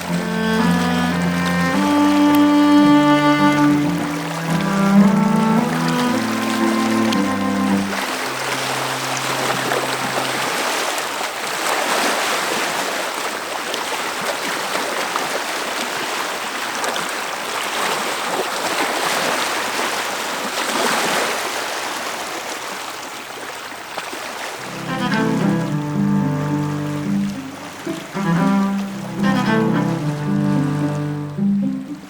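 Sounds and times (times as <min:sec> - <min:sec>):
mountain water rushing: 0:00.0 - 0:12.4, 0:24.6 - 0:32.0.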